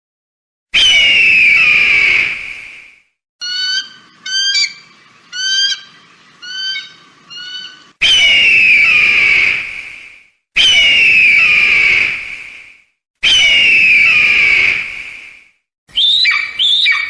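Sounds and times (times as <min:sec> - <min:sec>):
eagle calling: 0:03.4 - 0:09.3, 0:15.9 - 0:17.0.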